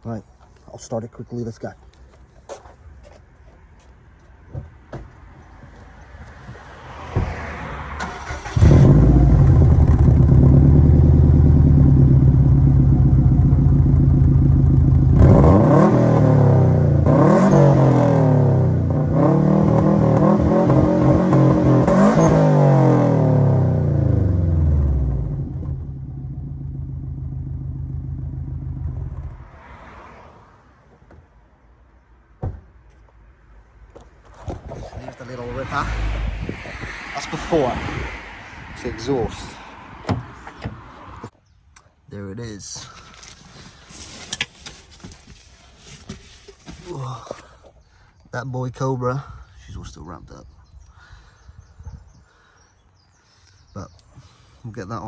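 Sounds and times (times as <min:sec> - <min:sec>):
car engine idling and revving: 0:07.9 - 0:29.6.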